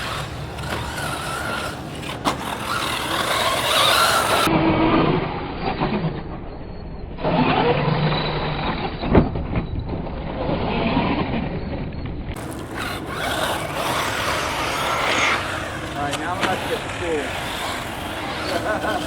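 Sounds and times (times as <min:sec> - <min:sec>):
rc car motor whining: 0:00.0 - 0:04.5, 0:12.3 - 0:19.0
tyre noise on dirt: 0:00.0 - 0:04.5, 0:12.3 - 0:19.0.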